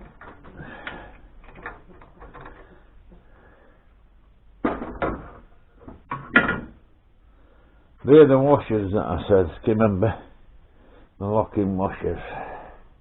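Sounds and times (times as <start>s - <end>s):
parts knocking on workbench: 4.6s - 6.8s.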